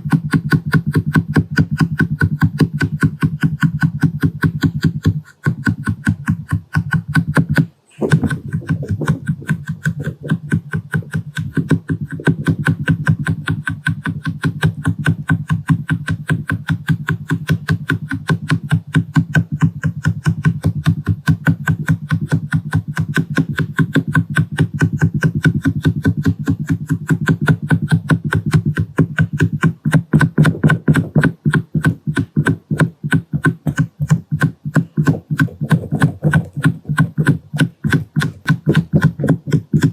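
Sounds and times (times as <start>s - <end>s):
makeup sponge tapping on lens: 0.0s - 39.9s.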